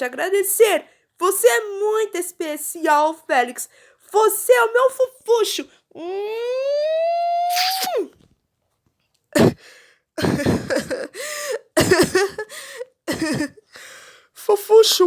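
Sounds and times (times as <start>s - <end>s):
person drawn-out vocal sound: 5.9s - 8.2s
person coughing and clearing throat: 9.4s - 12.5s, 13.1s - 13.7s.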